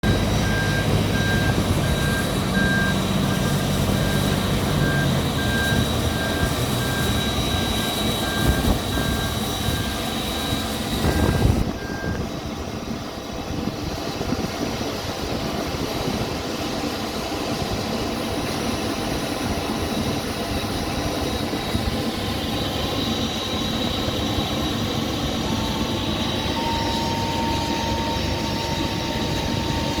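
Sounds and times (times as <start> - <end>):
tractor engine running: 0.0 - 12.1
reverse alarm beeping: 0.0 - 12.4, 24.2 - 30.0
steady high whine: 0.0 - 13.6, 17.9 - 30.0.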